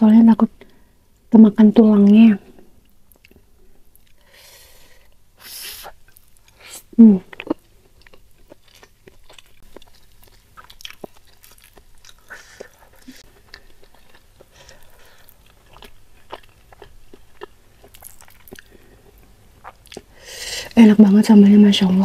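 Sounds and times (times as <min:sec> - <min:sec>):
wet chewing: 0:07.3 - 0:20.2.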